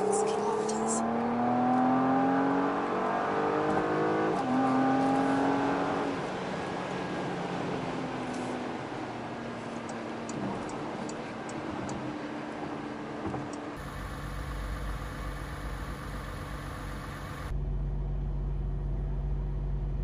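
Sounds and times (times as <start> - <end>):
car engine and road noise: 0.0 - 20.0
light ticks: 9.8 - 12.0
car engine idling: 13.8 - 17.6.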